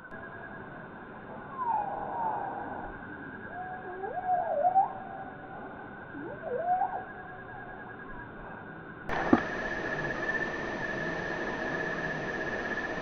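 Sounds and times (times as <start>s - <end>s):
click: 9.1s - 13.0s
high steady drone: 9.1s - 13.0s
insects humming: 9.1s - 13.0s.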